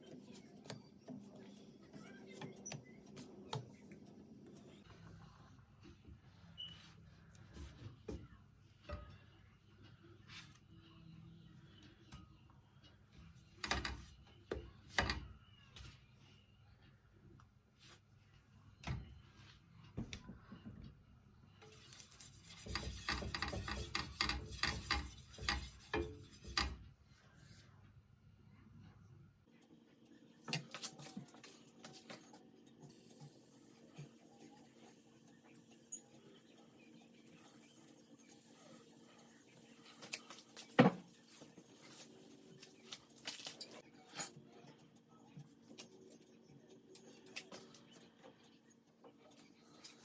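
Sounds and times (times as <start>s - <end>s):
kitchen utensils clicking and scraping: 21.7s - 26.9s.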